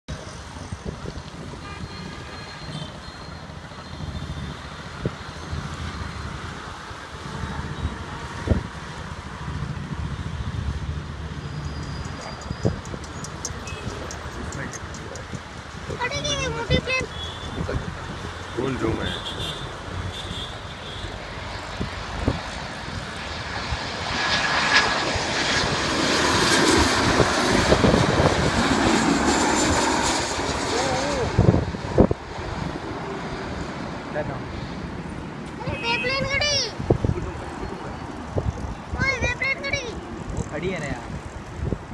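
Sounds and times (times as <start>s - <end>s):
distant airliner jet engines: 0.1s - 41.9s
wind buffeting microphone: 0.2s - 2.2s, 7.3s - 11.2s, 12.0s - 18.4s, 21.6s - 33.7s, 36.0s - 41.9s.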